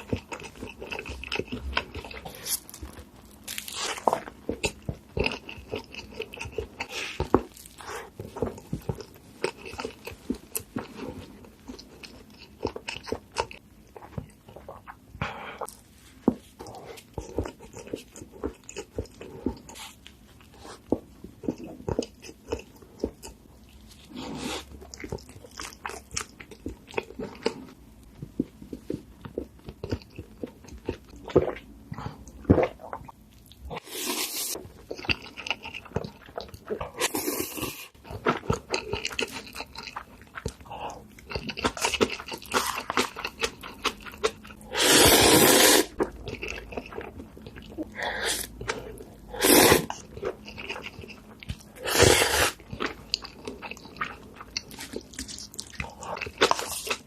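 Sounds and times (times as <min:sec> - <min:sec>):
crunching bites and chewing: 0:00.0 - 0:14.6, 0:49.8 - 0:57.0.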